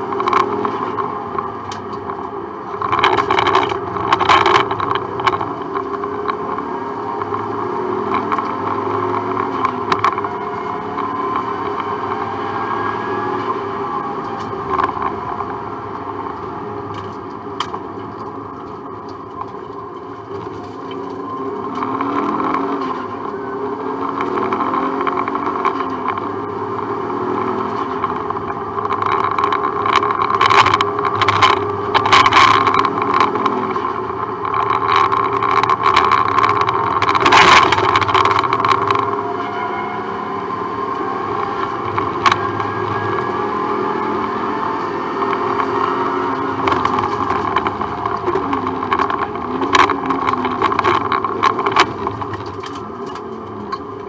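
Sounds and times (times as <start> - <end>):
sharp clatters and knocks: 0.0 - 12.3, 24.0 - 39.6, 40.9 - 54.0
rally car engine revving: 0.0 - 54.0.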